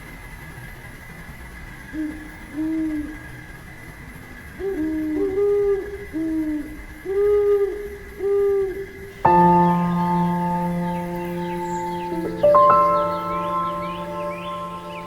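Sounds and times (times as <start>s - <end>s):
faint high hum: 1.9s - 15.0s
bird hooting: 2.0s - 3.4s, 4.6s - 15.0s.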